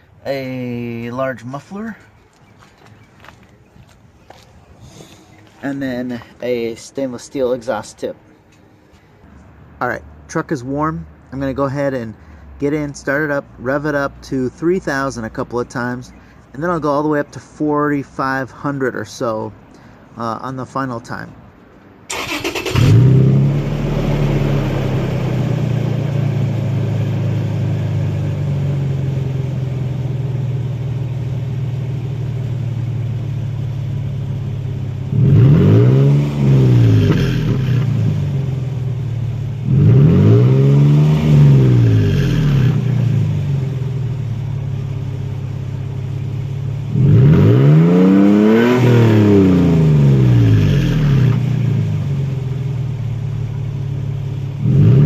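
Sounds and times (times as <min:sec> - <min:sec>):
truck engine idling and revving: 0:22.1 - 0:55.0.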